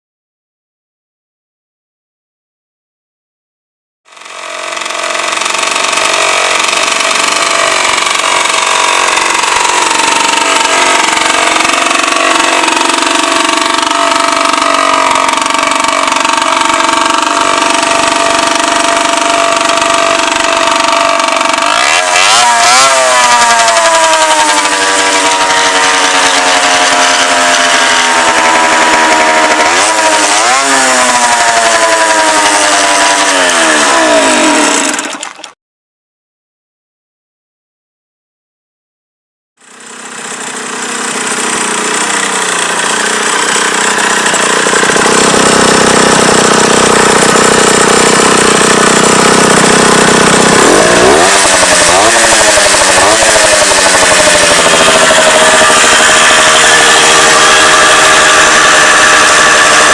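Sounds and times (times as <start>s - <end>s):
moped engine revving: 4.1s - 35.2s, 39.6s - 59.9s.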